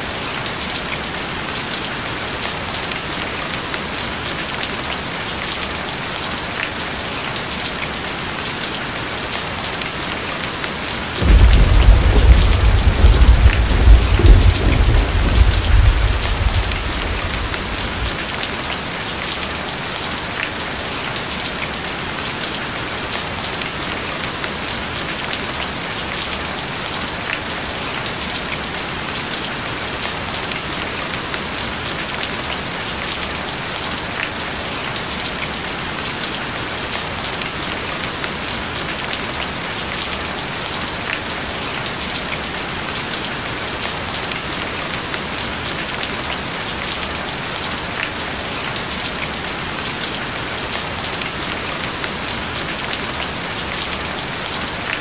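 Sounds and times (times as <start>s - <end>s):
steady rain falling: 0.0s - 55.0s
low rumble: 11.2s - 18.4s.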